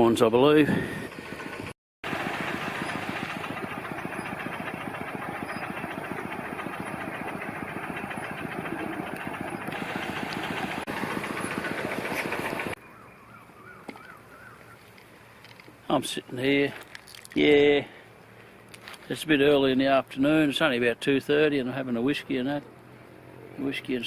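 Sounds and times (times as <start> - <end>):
paddlewheel aerator engine chugging: 0.0 - 12.8.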